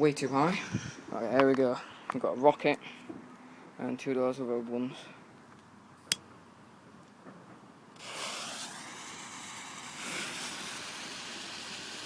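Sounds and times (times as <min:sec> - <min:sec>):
firework hissing: 0:08.0 - 0:12.0.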